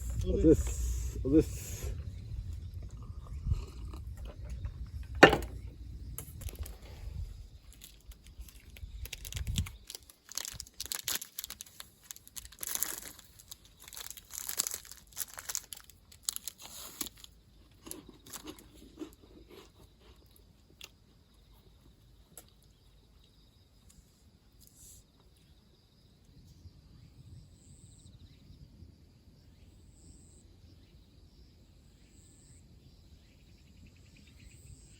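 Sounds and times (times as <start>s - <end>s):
crinkling and rustling: 4.0s - 19.0s
sharp knock: 5.2s - 5.6s.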